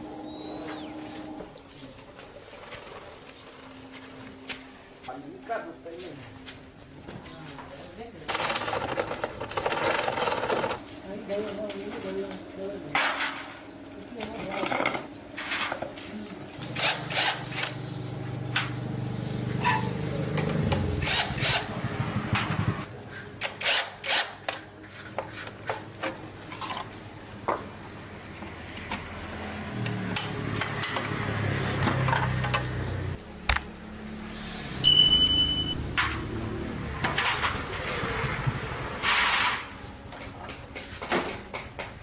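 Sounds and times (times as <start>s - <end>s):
short high beep: 0.1s - 1.2s, 34.8s - 36.4s.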